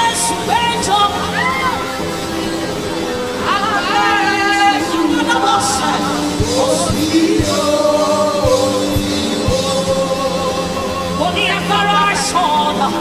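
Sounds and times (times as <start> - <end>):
sustained keyboard chords: 0.0 - 13.0
woman singing: 3.4 - 13.0.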